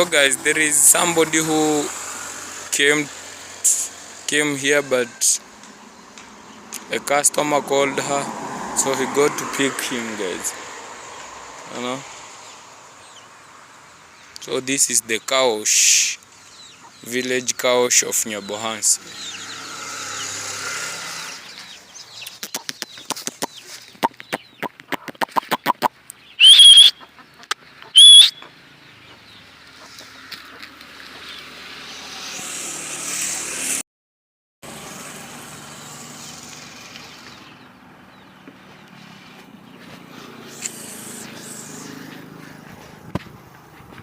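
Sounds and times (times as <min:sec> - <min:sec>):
chickens clucking: 0:21.1 - 0:26.0, 0:26.9 - 0:31.4
loud sharp high squawks: 0:26.4 - 0:27.1, 0:27.8 - 0:28.5.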